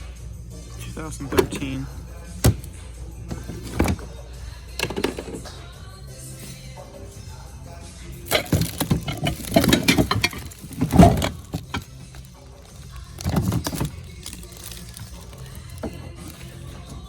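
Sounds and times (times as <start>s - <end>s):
faint background music: 0.0s - 17.0s
items clattering and rattling: 0.8s - 5.8s, 8.1s - 17.0s.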